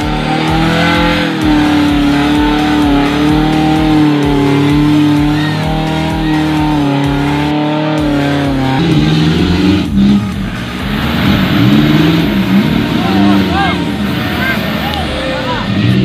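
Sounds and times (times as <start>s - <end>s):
engine at high revs: 0.0s - 16.0s
engine revving up and down: 0.0s - 16.0s.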